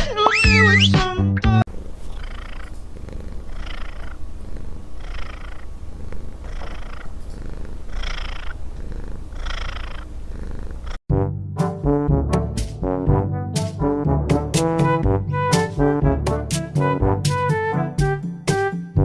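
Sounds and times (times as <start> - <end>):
cat purring: 1.7 - 11.0.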